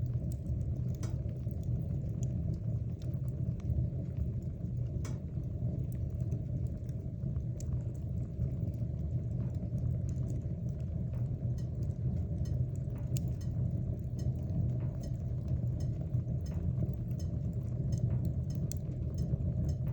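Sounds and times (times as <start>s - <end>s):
low rumble of flames: 0.0s - 19.9s
wood crackling and popping: 0.0s - 19.9s.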